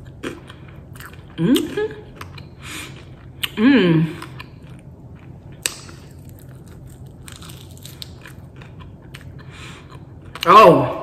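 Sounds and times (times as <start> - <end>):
chewing and crunching chicken wing: 4.2 - 10.4.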